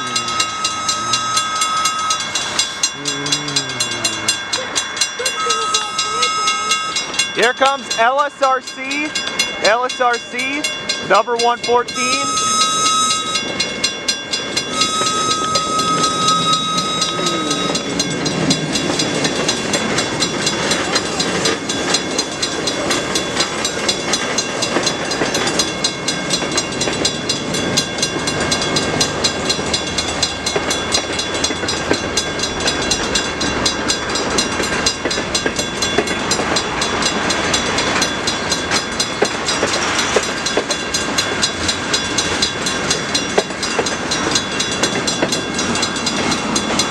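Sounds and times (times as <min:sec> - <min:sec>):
steady high tone: 0:00.0 - 0:19.2
train cars clattering over rails: 0:00.0 - 0:46.9.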